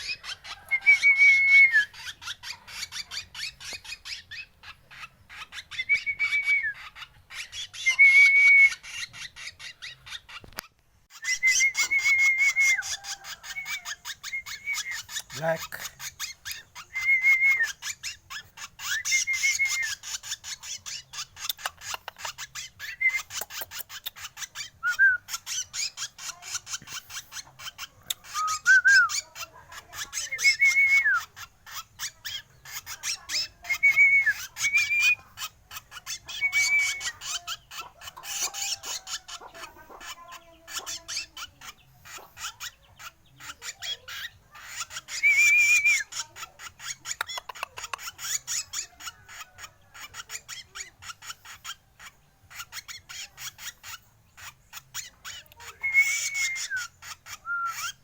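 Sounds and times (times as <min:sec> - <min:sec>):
bird raspy chatter: 0:00.0 - 0:58.0
bird whistled notes: 0:05.6 - 0:06.9, 0:11.2 - 0:15.4, 0:16.5 - 0:18.2, 0:18.8 - 0:21.0, 0:22.6 - 0:23.7, 0:24.8 - 0:26.0, 0:28.2 - 0:29.2, 0:30.2 - 0:31.3, 0:33.4 - 0:35.5, 0:36.1 - 0:37.4, 0:44.1 - 0:46.1, 0:55.7 - 0:58.0.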